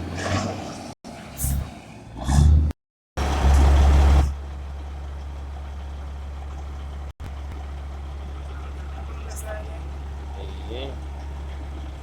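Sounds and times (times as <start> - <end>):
truck engine idling: 3.2 - 12.0.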